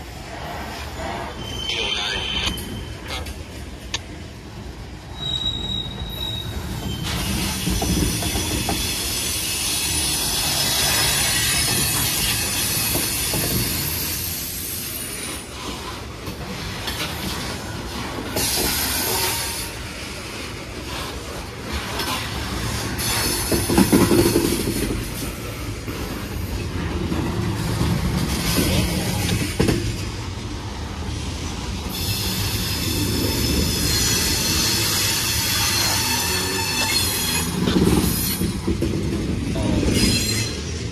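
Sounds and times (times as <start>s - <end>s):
steel wheels rumbling on rail: 0.0s - 40.9s
high-pitched wheel squeal: 5.1s - 15.2s, 31.9s - 38.5s.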